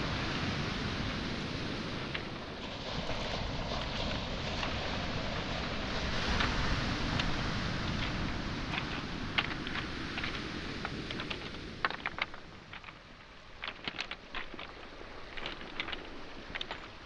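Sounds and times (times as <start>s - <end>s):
waves washing on shore: 0.0s - 17.0s
footsteps on pebbles: 6.3s - 17.0s.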